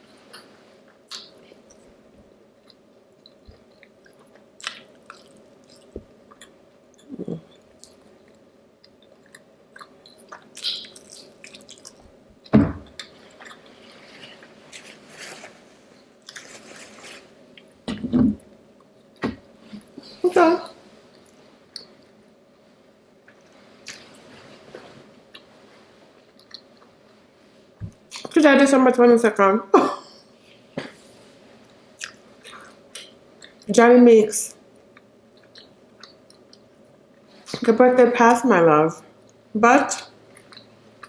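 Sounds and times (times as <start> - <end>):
person chewing food: 0.2 - 15.1, 23.2 - 27.0, 34.8 - 37.6, 40.2 - 41.0.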